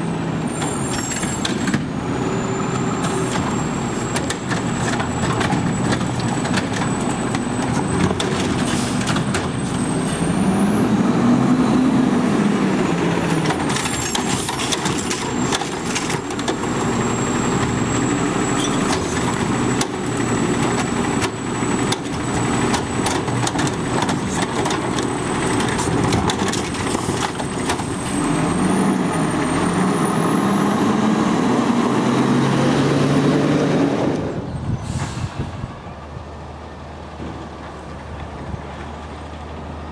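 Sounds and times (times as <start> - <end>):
garbage truck diesel engine revving: 0.0 - 34.5
clanks and knocks: 13.3 - 16.7.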